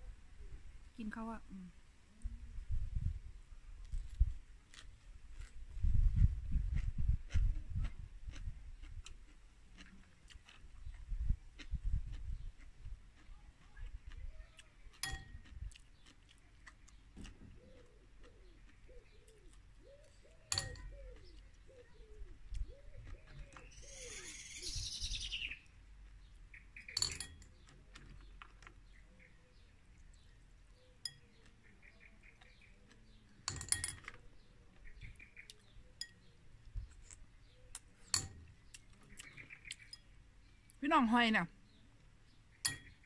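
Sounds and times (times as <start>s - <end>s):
birds chirping: 10.1s - 43.0s
bird cooing: 17.5s - 25.3s.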